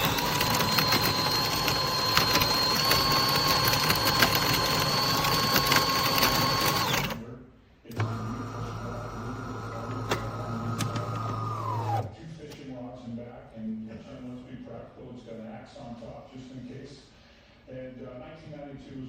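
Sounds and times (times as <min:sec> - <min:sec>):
motor with deep hum: 0:00.0 - 0:07.2
small motor whining: 0:00.0 - 0:07.2, 0:08.0 - 0:12.1.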